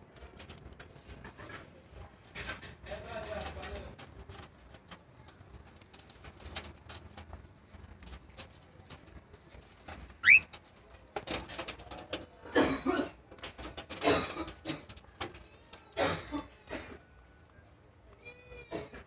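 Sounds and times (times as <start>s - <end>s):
cockatiel whistle: 10.2s - 10.4s
harsh scratchy bird calls: 10.2s - 10.6s.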